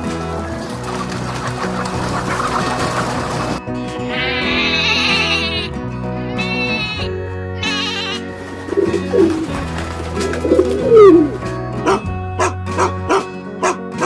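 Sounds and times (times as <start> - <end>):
background music: 0.0 - 14.0
animal cooing calls: 0.5 - 3.6, 8.2 - 12.0.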